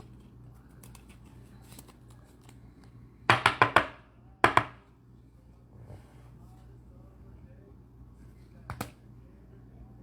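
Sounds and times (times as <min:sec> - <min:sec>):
card packaging rustling: 0:00.0 - 0:02.6.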